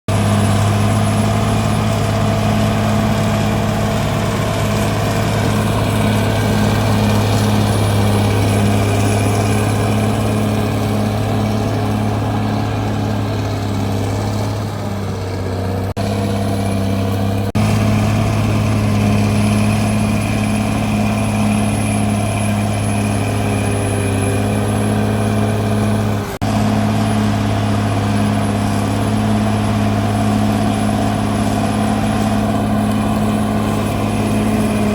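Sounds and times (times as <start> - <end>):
bulldozer diesel engine running: 0.1 - 34.9.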